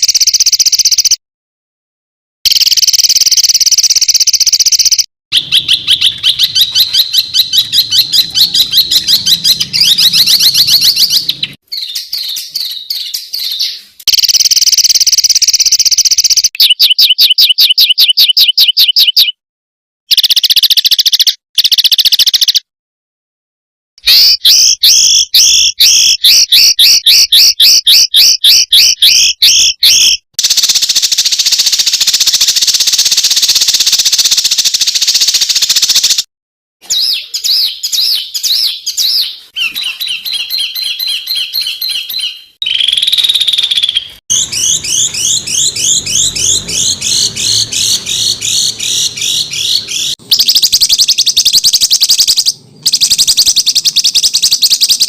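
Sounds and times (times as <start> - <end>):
high bird trill: 0.0 - 1.2, 2.5 - 19.4, 20.1 - 22.7, 24.0 - 55.0
songbirds harsh rapid calls: 5.3 - 19.3, 36.8 - 55.0.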